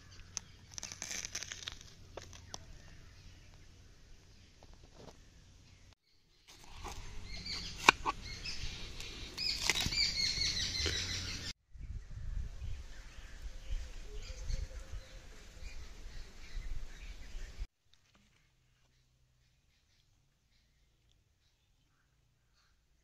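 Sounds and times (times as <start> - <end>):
watermelon being cut: 6.5 - 8.4, 9.3 - 11.1.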